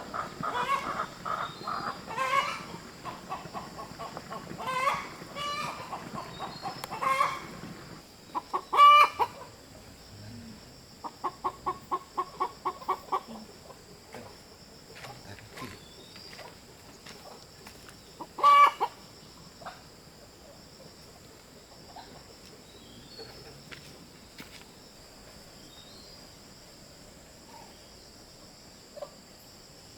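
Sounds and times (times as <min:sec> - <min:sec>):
chicken clucking: 0:00.0 - 0:09.4, 0:18.3 - 0:19.0
chicken squawk: 0:00.0 - 0:09.4, 0:18.4 - 0:18.9.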